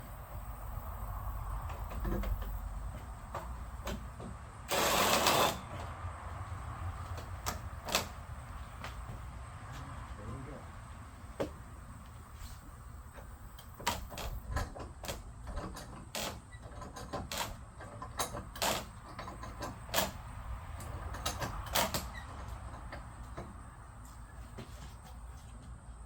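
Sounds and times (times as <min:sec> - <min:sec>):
sharp clicks and knocks: 0:01.6 - 0:05.9.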